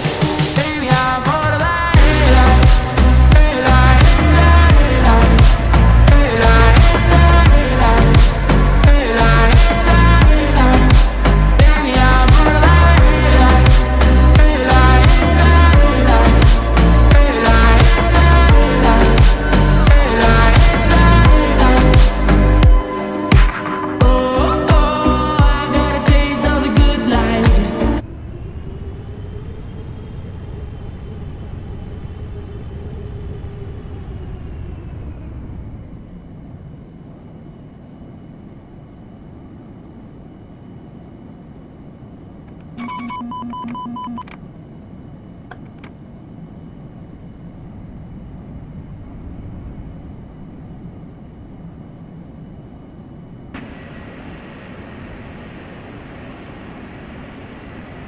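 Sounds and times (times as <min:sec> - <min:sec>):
faint whine: 0:00.0 - 0:58.0
jet airliner in flight: 0:00.0 - 0:58.0
short electronic tone: 0:42.8 - 0:44.3.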